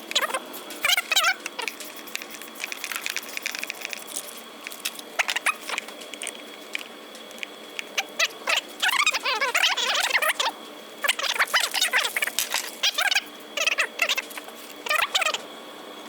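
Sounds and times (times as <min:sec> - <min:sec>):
short squeaky rasps: 0:05.0 - 0:05.9.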